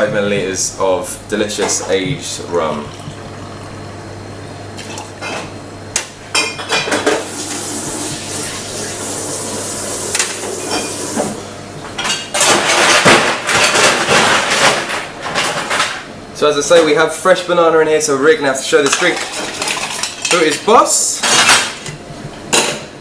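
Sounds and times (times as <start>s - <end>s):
liquid pouring: 2.4s - 4.1s.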